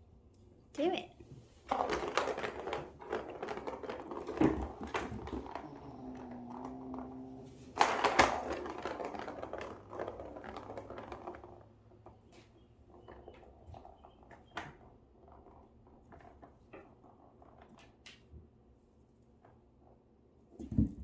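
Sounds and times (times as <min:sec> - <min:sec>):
plastic toy clattering: 0:01.7 - 0:17.9.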